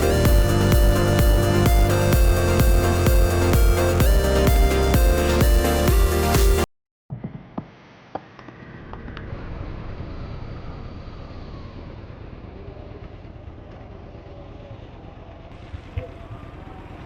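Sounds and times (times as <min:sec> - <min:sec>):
motorcycle engine rumbling: 0:00.0 - 0:05.4.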